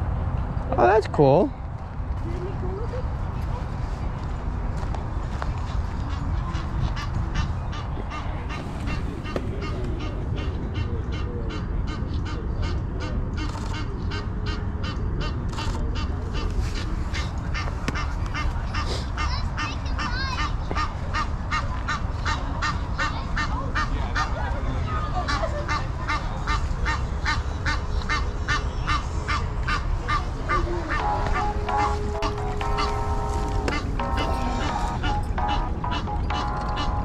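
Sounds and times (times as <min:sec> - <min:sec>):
constant low rumble: 0:00.0 - 0:37.0
goose honking: 0:25.3 - 0:37.0
music: 0:30.9 - 0:37.0.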